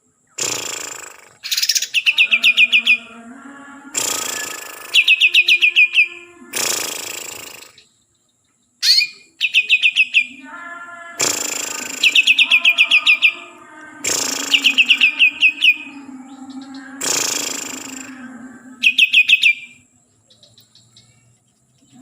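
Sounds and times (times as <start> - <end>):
short bursts of noise: 0.4 - 1.8, 3.9 - 7.8, 9.9 - 15.9, 16.9 - 18.2
bird whistling song: 1.4 - 3.1, 4.0 - 8.1, 8.8 - 10.4, 11.2 - 13.4, 14.1 - 18.2, 18.8 - 21.2.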